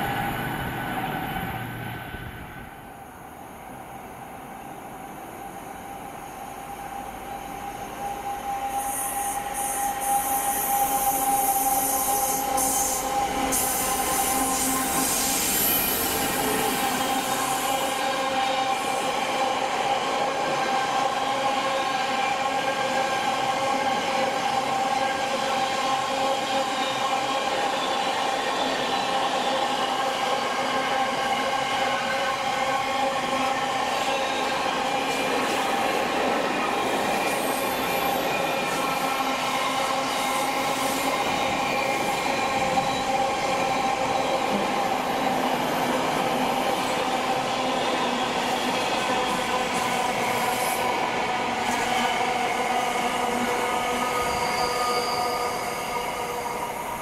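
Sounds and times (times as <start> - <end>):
diesel locomotive passing: 0.0 - 3.5, 5.4 - 29.7.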